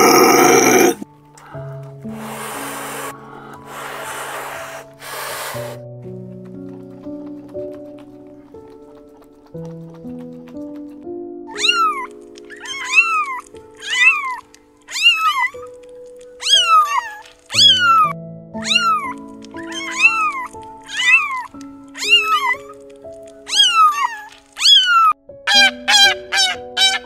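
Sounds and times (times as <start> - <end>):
soft piano music: 0.0 - 27.0
animal making short calls: 11.5 - 15.7, 16.4 - 22.8, 23.5 - 27.0
kitten meowing: 11.5 - 15.7, 16.4 - 22.8, 23.4 - 27.0.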